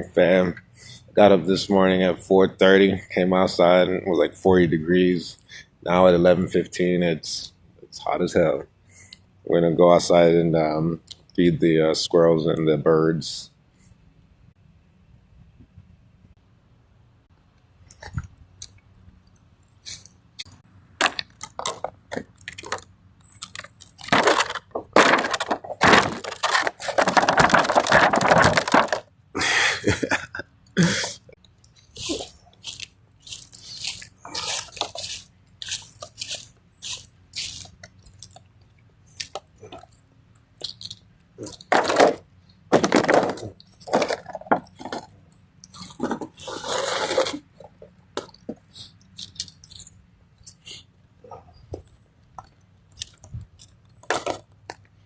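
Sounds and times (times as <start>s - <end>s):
feed crunching and rattling: 19.9s - 29.1s, 31.8s - 38.4s, 40.6s - 50.0s.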